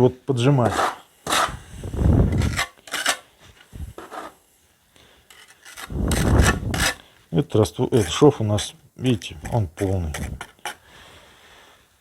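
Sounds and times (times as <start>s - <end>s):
brick scraping into mortar: 0.6s - 3.3s, 4.0s - 4.4s, 5.3s - 7.0s.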